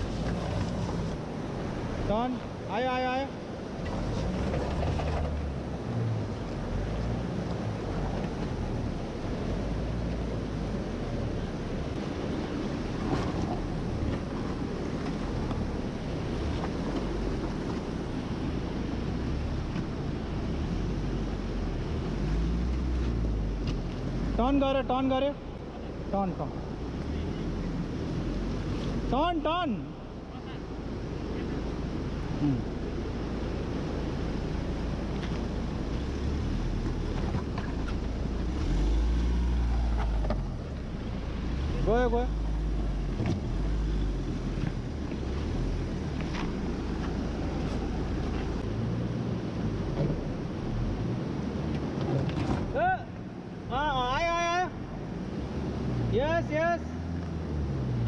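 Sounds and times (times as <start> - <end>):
wind rumbling on microphone: 0.0 - 24.4
diesel engine revving: 3.7 - 25.6, 31.7 - 52.8.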